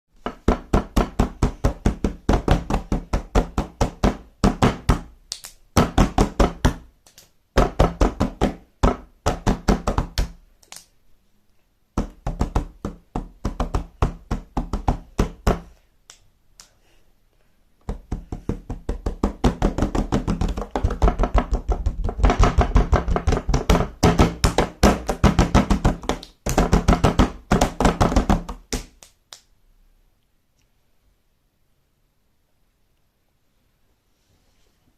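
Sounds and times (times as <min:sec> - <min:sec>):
rapid rhythmic knocking: 0:00.2 - 0:05.1, 0:17.9 - 0:28.8.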